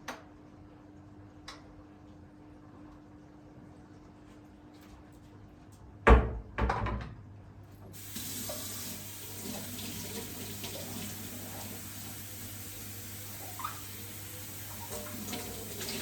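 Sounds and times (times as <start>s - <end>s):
tap water running into sink: 7.9s - 16.0s.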